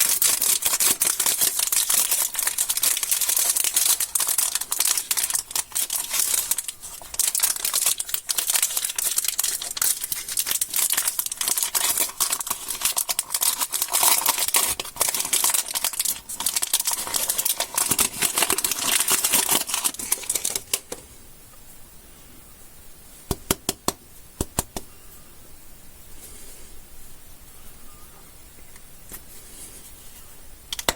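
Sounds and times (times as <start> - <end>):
plastic wrappers crinkling and tearing: 0.0 - 20.9.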